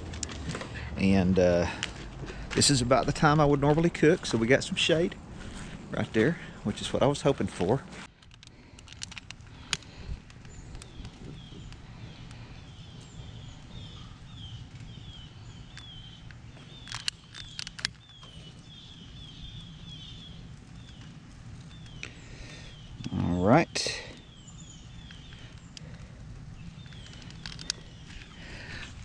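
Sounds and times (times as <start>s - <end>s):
bird chirping: 9.5s - 29.0s.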